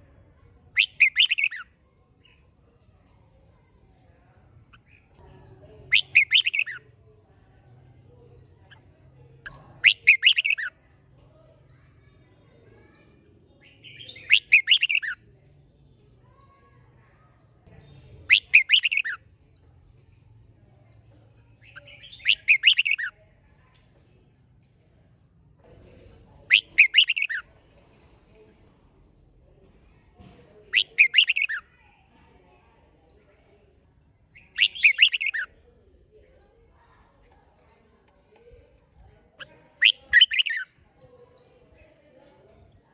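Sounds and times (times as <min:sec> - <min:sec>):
bird singing loud phrase: 0:00.6 - 0:03.2, 0:04.7 - 0:10.8, 0:11.4 - 0:19.6, 0:20.7 - 0:23.2, 0:26.2 - 0:27.5, 0:30.7 - 0:31.7, 0:32.3 - 0:33.2, 0:34.2 - 0:36.7, 0:38.9 - 0:41.5
faint bird chirps: 0:00.6 - 0:23.8, 0:25.8 - 0:27.5, 0:30.6 - 0:33.3, 0:34.2 - 0:41.8.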